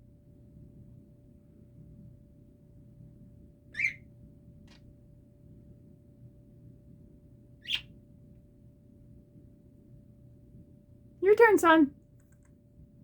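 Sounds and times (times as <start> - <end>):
faint steady hum: 0.0 - 13.0
parrot chirping: 3.7 - 4.0, 7.6 - 7.9.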